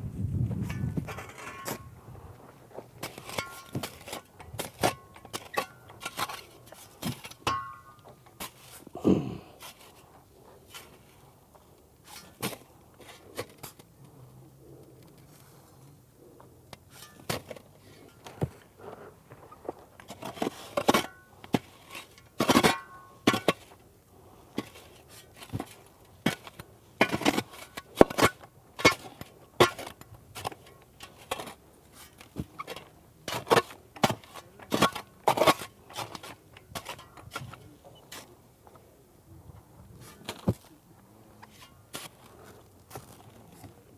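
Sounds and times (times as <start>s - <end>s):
shovel scraping sand: 3.0s - 7.8s, 8.4s - 8.9s, 12.0s - 13.8s, 16.9s - 17.7s, 20.0s - 23.8s, 24.6s - 38.4s, 39.9s - 40.7s, 41.4s - 43.7s.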